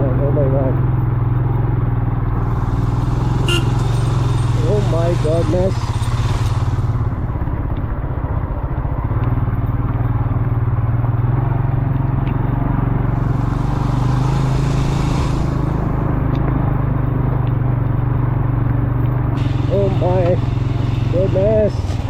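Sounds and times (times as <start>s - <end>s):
motorcycle engine running: 0.0s - 22.0s
hiss: 13.2s - 16.0s.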